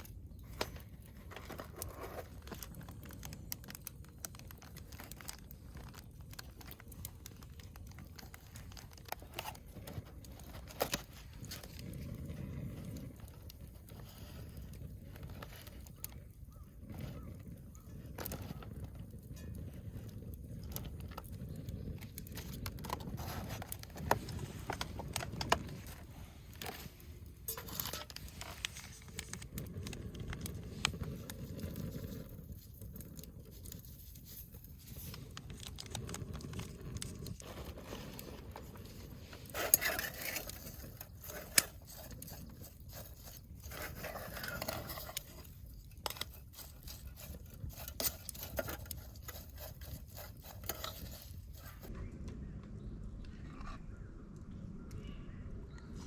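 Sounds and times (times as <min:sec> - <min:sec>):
small objects clicking and scraping: 0:00.0 - 0:51.9
low steady rumble: 0:51.0 - 0:56.0.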